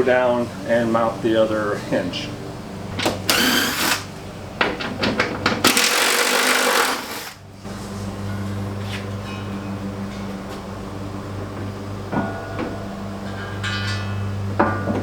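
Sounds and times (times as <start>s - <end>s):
power tool driving bolts: 3.0s - 4.1s, 5.5s - 7.4s
steady low hum: 7.3s - 15.0s.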